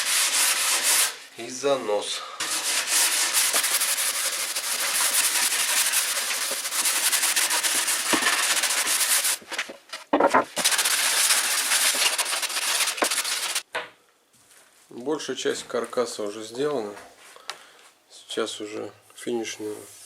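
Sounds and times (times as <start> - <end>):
sandpaper rasping on wood: 0.0 - 1.2, 2.4 - 9.4, 10.6 - 13.6.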